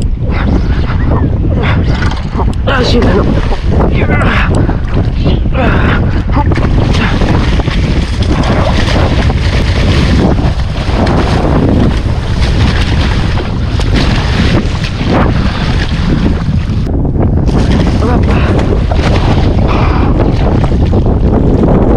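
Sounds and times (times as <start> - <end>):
sea water: 0.0 - 21.9
wind buffeting microphone: 0.0 - 21.9.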